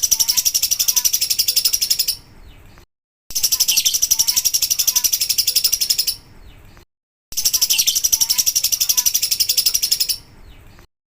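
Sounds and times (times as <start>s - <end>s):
lovebird fast high chatter: 0.0s - 2.2s, 3.3s - 6.3s, 7.4s - 10.3s.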